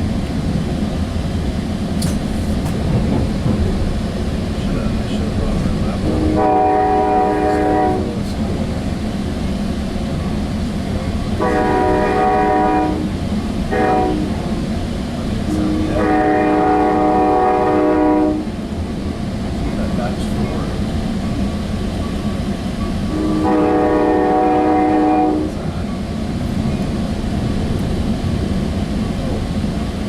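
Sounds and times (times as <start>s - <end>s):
train rumbling on rails: 0.0s - 30.0s
train horn blasts: 6.0s - 8.2s, 11.4s - 14.6s, 15.4s - 18.6s, 23.1s - 25.7s.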